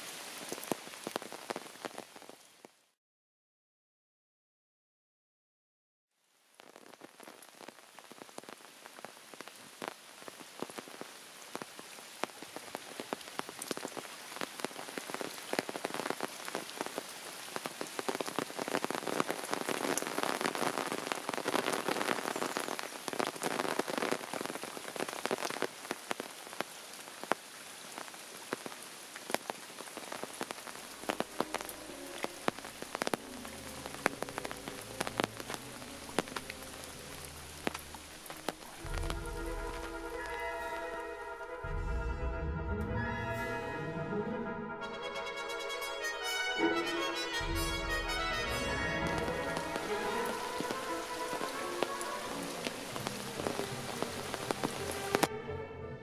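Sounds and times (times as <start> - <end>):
heavy rain with drop impacts: 0.0 - 3.0, 6.3 - 43.0, 45.0 - 55.4
music: 31.0 - 56.0.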